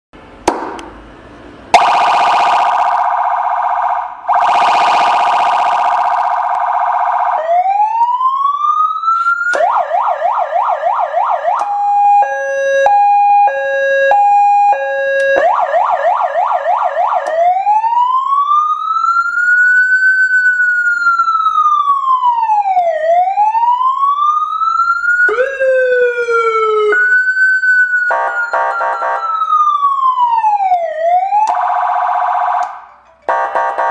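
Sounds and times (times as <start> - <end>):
emergency vehicle siren: 1.7 - 33.9
harsh horn blasts: 32.3 - 33.9.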